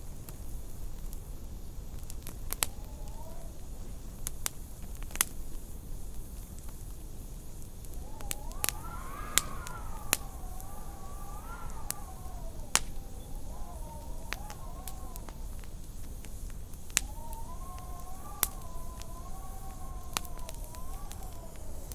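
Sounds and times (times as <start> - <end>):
wind howling: 2.5 - 4.1, 7.6 - 21.9
wood fire crackling and popping: 7.9 - 21.9.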